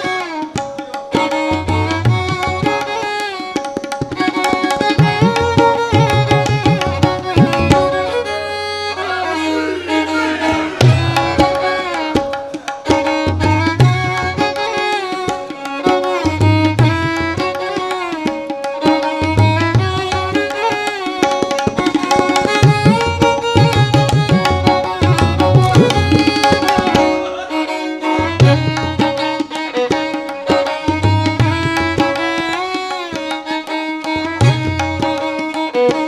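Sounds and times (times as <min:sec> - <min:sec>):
tabla playing a steady rhythm: 0:00.0 - 0:36.0
sliding melodic line: 0:21.8 - 0:28.1.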